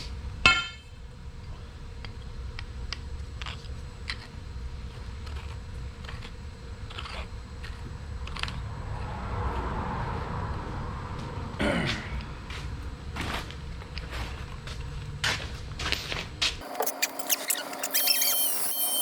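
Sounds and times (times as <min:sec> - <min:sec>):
metal clank with ring: 0:00.4 - 0:01.0.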